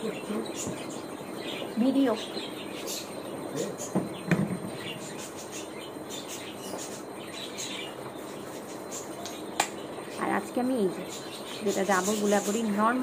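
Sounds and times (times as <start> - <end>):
small birds chirping: 0.0 - 13.0
steady background noise: 0.0 - 13.0.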